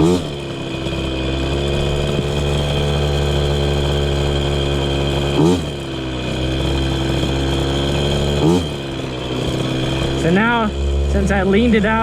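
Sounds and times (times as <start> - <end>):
two-stroke engine idling: 0.0 - 12.0.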